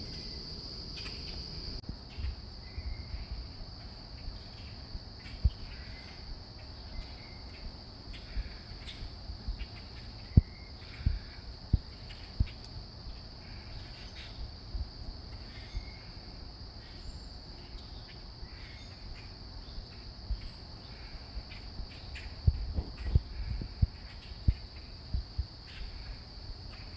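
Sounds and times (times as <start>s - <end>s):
high-pitched insect chorus: 0.0s - 26.9s
low thumps: 21.8s - 25.5s.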